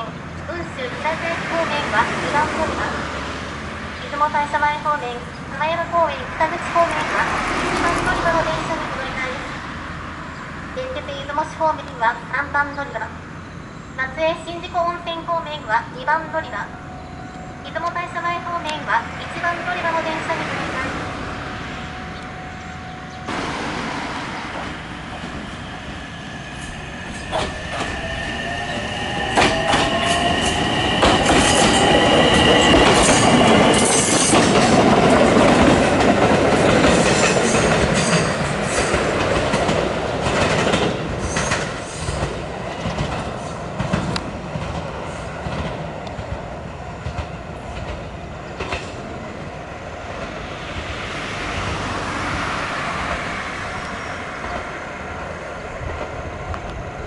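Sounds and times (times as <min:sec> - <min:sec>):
electric train passing: 0:00.0 - 0:57.0.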